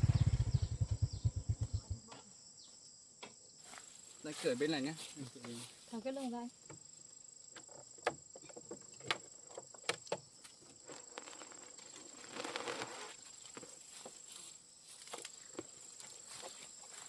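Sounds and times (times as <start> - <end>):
insects buzzing: 0.0 - 17.0
rustling: 10.8 - 15.3.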